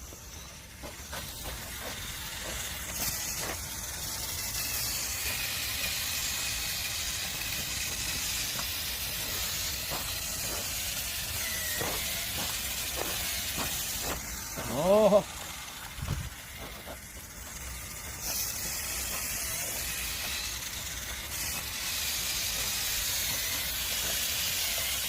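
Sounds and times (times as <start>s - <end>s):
cleaning machine hissing: 0.0s - 25.0s.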